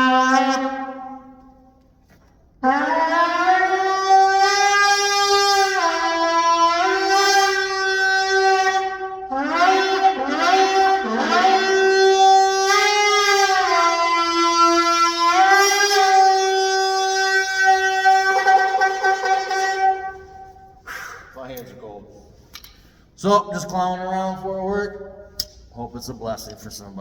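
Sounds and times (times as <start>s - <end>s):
horn shofar blasts: 0.0s - 1.8s, 2.6s - 21.4s.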